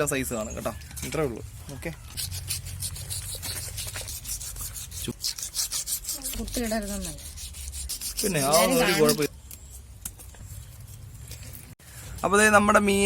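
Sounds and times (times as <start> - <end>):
rasping scrapes of fish scaling: 2.2 - 9.2.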